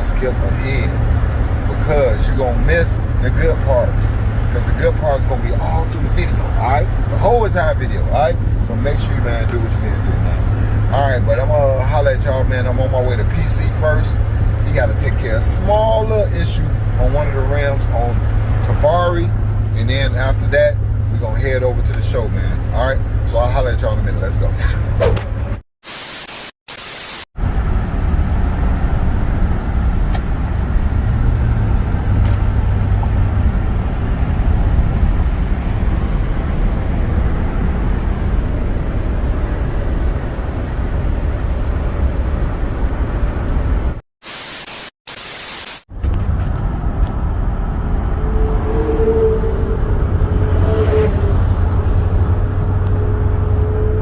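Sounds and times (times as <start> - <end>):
vehicle driving on road: 0.0 - 25.6, 27.4 - 44.0, 45.9 - 54.0
static hiss bursts: 25.8 - 27.3, 44.2 - 45.9.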